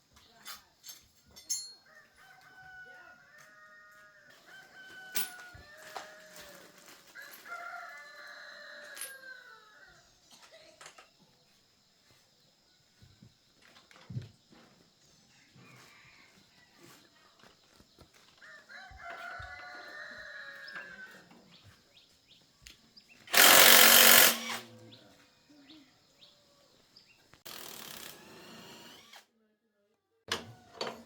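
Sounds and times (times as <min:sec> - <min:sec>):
rooster crowing: 0:01.8 - 0:10.0, 0:15.3 - 0:17.1, 0:18.4 - 0:21.5.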